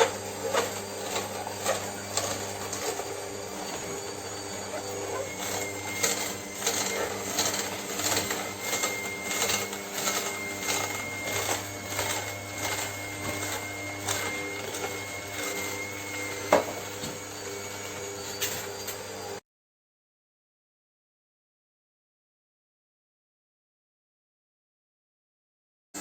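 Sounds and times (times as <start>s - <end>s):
small motor humming and whining: 0.0s - 19.4s.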